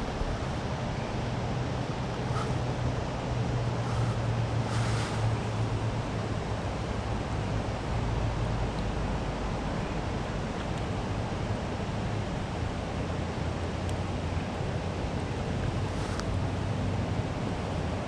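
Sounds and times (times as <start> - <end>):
fast-flowing creek water rushing: 1.8 - 2.9.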